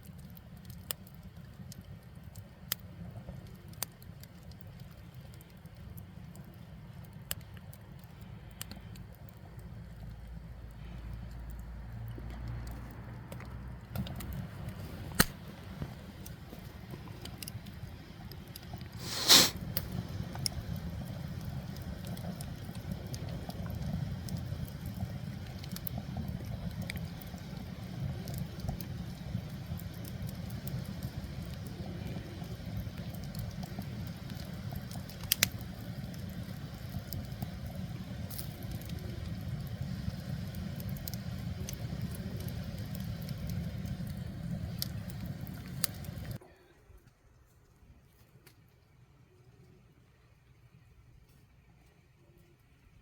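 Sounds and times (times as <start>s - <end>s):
fire crackles and pops: 0.0s - 46.4s
wood fire rumbling: 0.0s - 47.7s.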